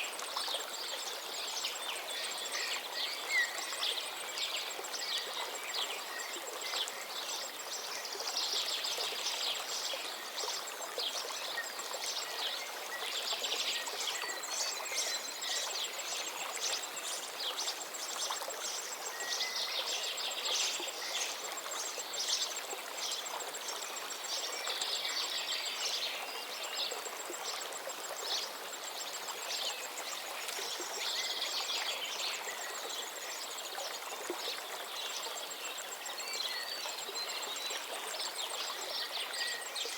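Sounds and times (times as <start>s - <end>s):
stream of water running: 0.0s - 39.9s.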